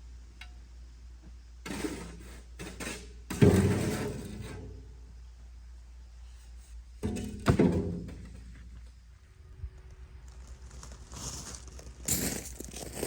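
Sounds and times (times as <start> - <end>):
heavy thunks of hard objects: 7.0 - 8.8.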